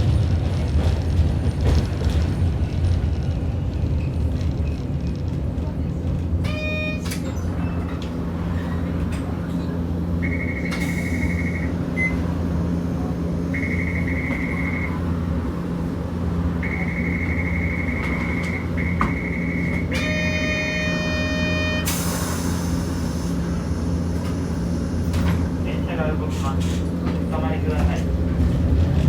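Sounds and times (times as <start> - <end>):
tram interior hum: 0.0 - 29.0
high steady tone: 13.5 - 15.1, 16.6 - 21.9.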